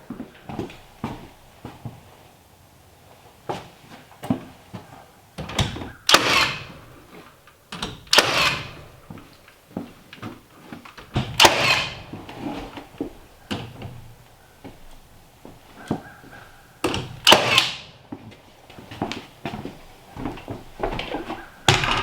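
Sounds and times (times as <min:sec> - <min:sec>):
tools and lumber knocking: 0:03.5 - 0:22.0
loud rasping bursts: 0:06.0 - 0:07.0, 0:08.1 - 0:09.0, 0:11.3 - 0:12.6.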